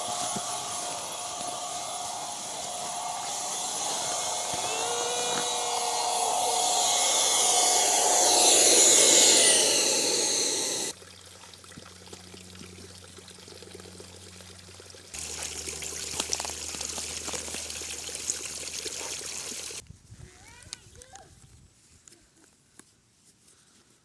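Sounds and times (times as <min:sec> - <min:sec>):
electric air pump whining: 0:00.0 - 0:10.9.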